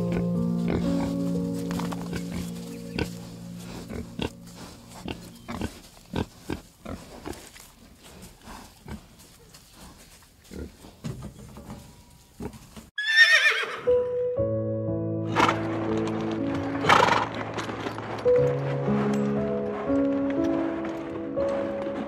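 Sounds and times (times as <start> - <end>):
background music: 0.0 - 6.3, 13.0 - 22.0
pigs grunting and snuffling: 0.0 - 12.9, 15.3 - 22.0
horse whinnying: 13.0 - 13.9.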